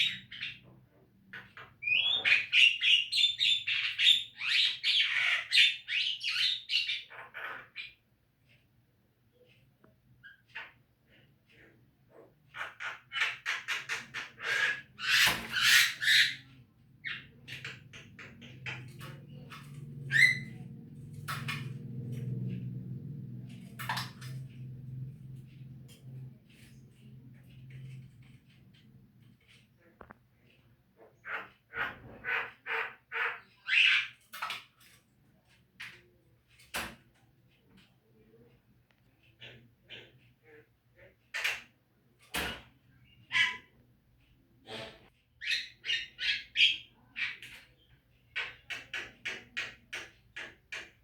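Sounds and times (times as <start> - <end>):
low steady hum: 16.6 - 29.4.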